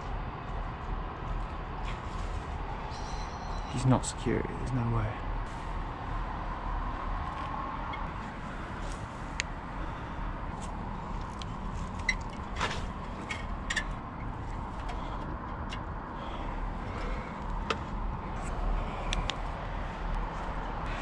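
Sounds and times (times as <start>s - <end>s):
low rumble of background noise: 0.0s - 21.0s
light clicks and taps: 17.0s - 19.5s.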